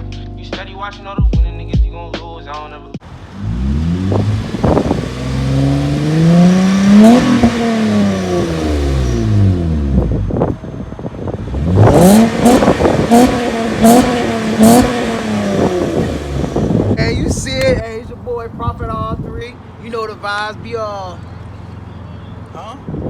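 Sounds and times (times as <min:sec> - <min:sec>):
car engine revving: 0:03.0 - 0:19.0
exhaust cracks: 0:03.0 - 0:19.5.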